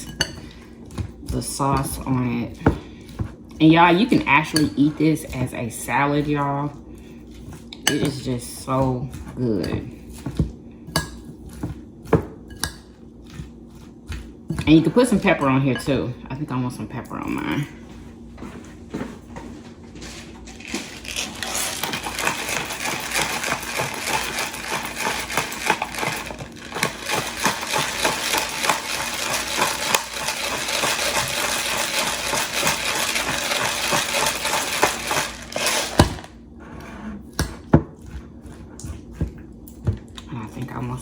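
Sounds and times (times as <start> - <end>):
pepper grinder crackling: 20.6 - 36.4.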